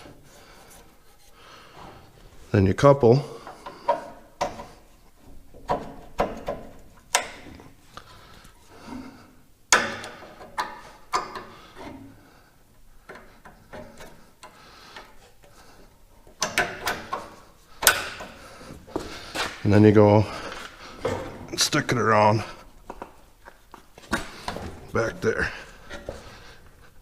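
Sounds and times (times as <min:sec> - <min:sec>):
hose couplers clicking and knocking: 0:03.4 - 0:08.6, 0:09.7 - 0:19.8, 0:22.5 - 0:26.8.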